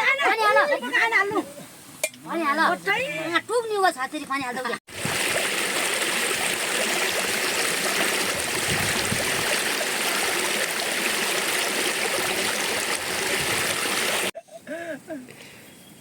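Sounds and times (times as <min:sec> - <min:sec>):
stream water rushing: 0:04.9 - 0:14.4.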